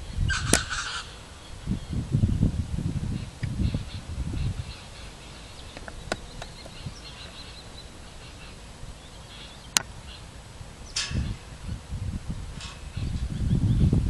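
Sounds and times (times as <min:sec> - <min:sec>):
birds chirping faintly: 0:00.0 - 0:14.0
sharp click: 0:10.9 - 0:11.4.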